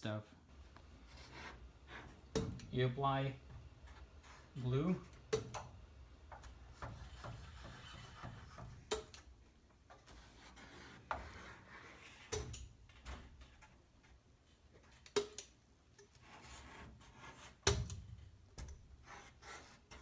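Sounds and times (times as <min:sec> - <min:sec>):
soft rubbing: 0:00.5 - 0:02.3, 0:03.2 - 0:05.1.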